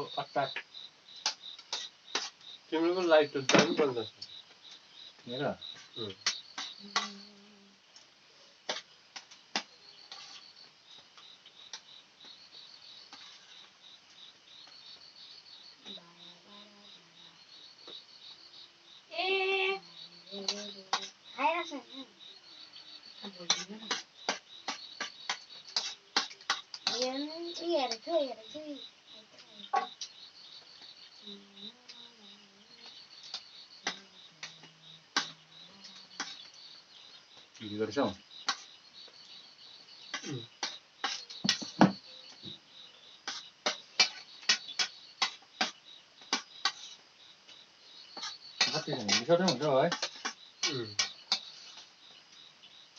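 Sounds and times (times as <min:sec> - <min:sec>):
crickets chirping: 0:00.0 - 0:52.9
sharp clicks of hard objects: 0:48.2 - 0:51.9.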